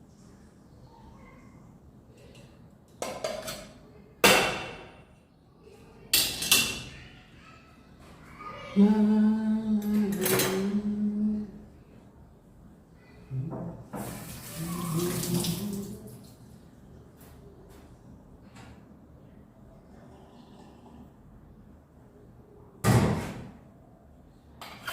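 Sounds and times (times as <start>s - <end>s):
dishes clanking: 2.2s - 5.0s, 9.8s - 10.9s, 24.6s - 24.9s
person humming: 8.8s - 11.7s, 14.6s - 16.1s.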